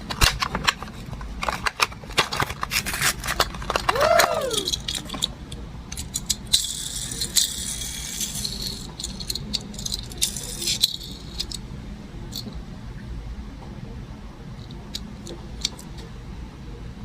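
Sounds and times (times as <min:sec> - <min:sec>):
plastic packaging crinkling: 0:01.4 - 0:04.0.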